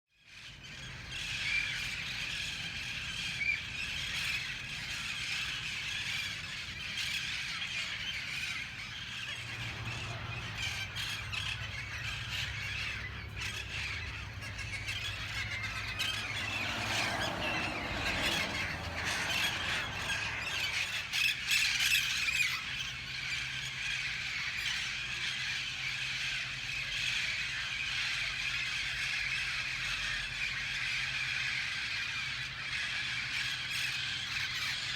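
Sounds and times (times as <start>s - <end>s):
parrots screeching: 0.4s - 34.9s.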